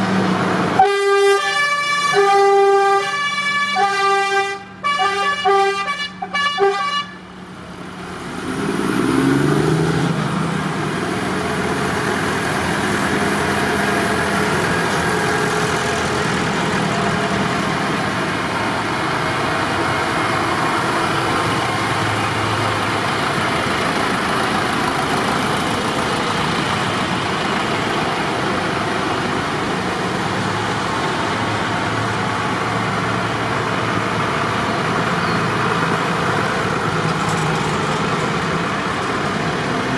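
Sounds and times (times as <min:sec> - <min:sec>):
vehicle engines running: 0:00.0 - 0:39.9
vehicle horn tooting: 0:00.8 - 0:07.2.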